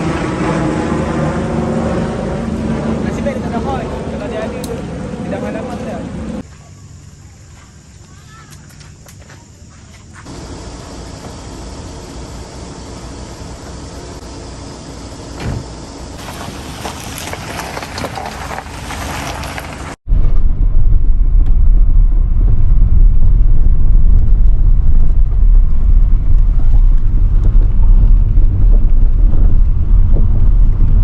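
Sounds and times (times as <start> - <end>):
car road and engine rumble: 0.0 - 6.5, 10.2 - 31.0.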